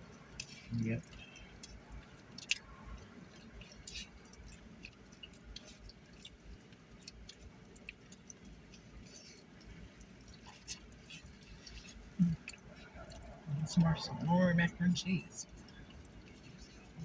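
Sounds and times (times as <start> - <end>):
people chewing: 0.0 - 17.0
low road rumble: 10.9 - 17.0.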